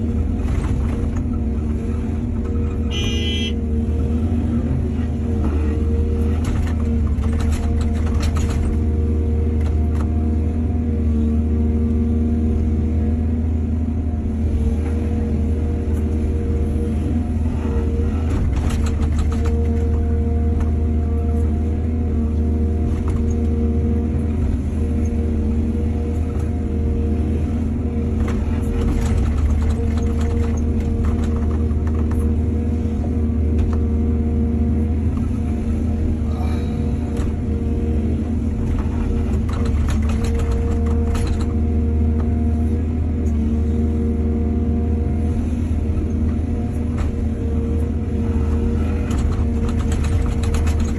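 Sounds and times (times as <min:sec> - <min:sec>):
excavator diesel engine running: 0:00.0 - 0:50.9
knocks and rattles: 0:38.7 - 0:41.6, 0:49.1 - 0:50.9.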